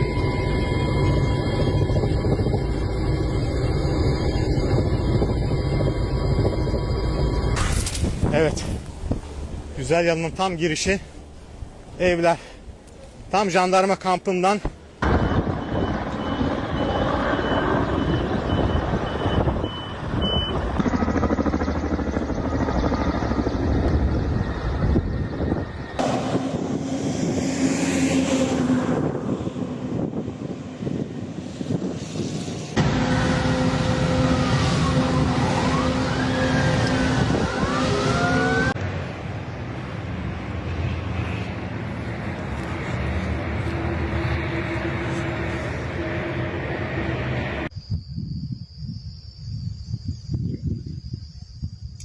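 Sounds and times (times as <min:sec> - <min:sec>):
sirens wailing: 0:00.0 - 0:07.6, 0:32.7 - 0:47.7
truck reversing alarm beeping: 0:00.0 - 0:07.6, 0:15.0 - 0:22.0
engine rumble: 0:00.0 - 0:13.4, 0:14.7 - 0:47.7
loud rushing noise: 0:26.0 - 0:37.6, 0:38.8 - 0:47.7.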